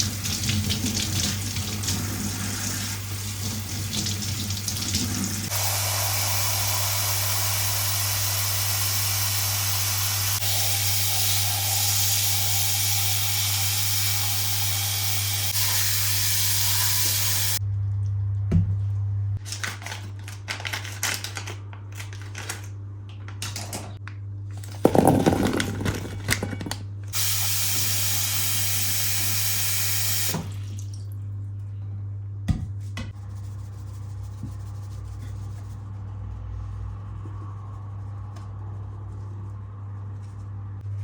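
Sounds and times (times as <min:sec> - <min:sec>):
water running from tap: 0:00.0 - 0:17.6, 0:27.2 - 0:31.2
clattering and handling: 0:24.5 - 0:26.9.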